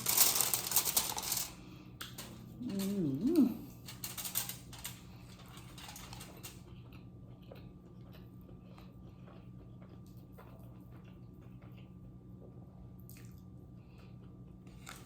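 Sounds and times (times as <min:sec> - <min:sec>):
low steady hum: 0:00.0 - 0:15.0
person chewing: 0:05.6 - 0:15.0.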